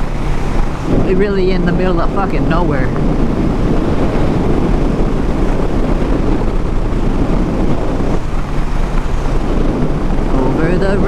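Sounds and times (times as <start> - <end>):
motorcycle engine drone: 0.0 - 11.0
wind rushing on microphone: 0.0 - 11.0.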